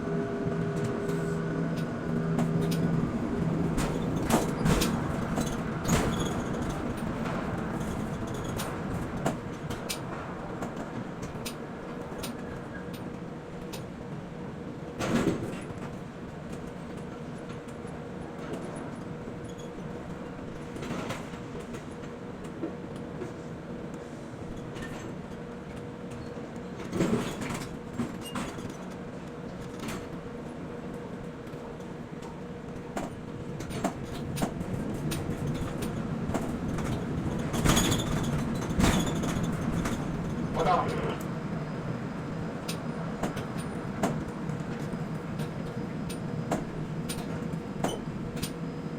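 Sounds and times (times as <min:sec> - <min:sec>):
port machinery hum: 0:00.0 - 0:05.8.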